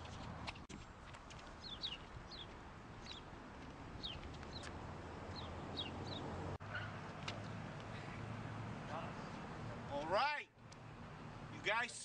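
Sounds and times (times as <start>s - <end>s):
small birds chirping: 1.3s - 3.4s, 4.0s - 8.2s.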